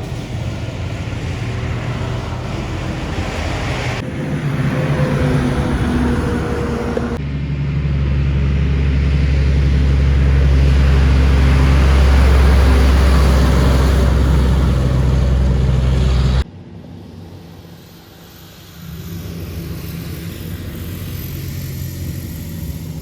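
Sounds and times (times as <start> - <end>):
truck diesel engine passing: 0.0 - 16.5, 17.8 - 23.0
tyre and road noise: 0.0 - 16.5.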